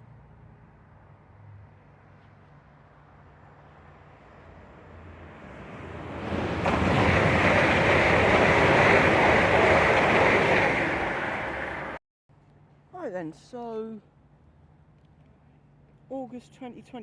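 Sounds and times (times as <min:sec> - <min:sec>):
train passing at speed: 0:02.0 - 0:12.0
wind buffeting microphone: 0:05.2 - 0:12.0.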